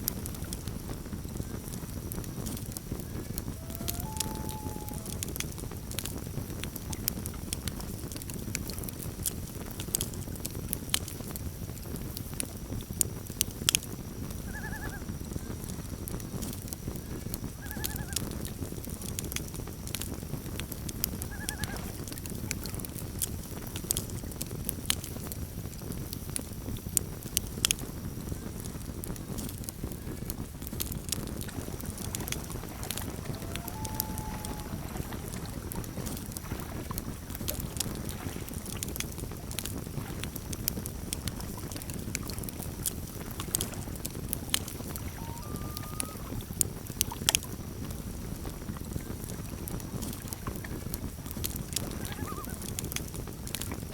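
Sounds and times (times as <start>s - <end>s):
campfire crackling and popping: 0.0s - 53.9s
loon calling: 3.1s - 5.4s, 14.5s - 15.0s, 17.6s - 18.2s, 21.3s - 21.9s, 31.9s - 35.6s, 44.9s - 46.4s, 51.9s - 52.7s.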